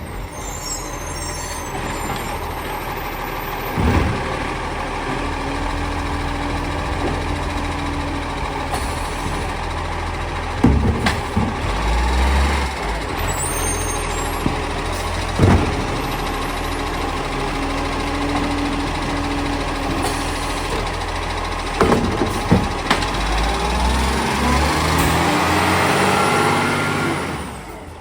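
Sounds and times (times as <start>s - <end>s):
garbage truck engine running: 0.0s - 28.0s
sharp knocks: 18.1s - 23.4s.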